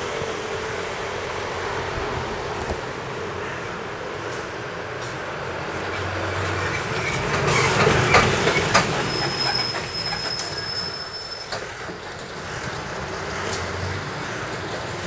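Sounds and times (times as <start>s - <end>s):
electric train passing: 0.0s - 15.0s
high-pitched wheel squeal: 6.6s - 11.8s.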